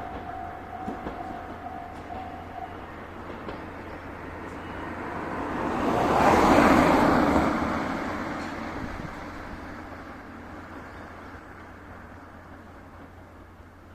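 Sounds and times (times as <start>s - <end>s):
wheels on rails: 0.0s - 4.8s
steam train passing: 0.0s - 13.9s.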